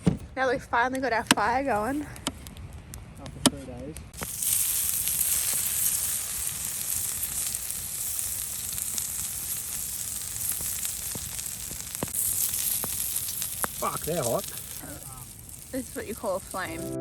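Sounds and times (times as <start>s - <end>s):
food sizzling in a pan: 4.2s - 17.0s.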